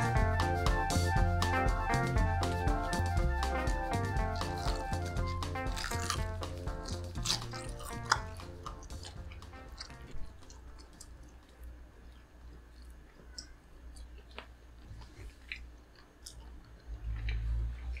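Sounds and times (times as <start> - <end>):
crunching fried chicken: 4.2 - 18.0.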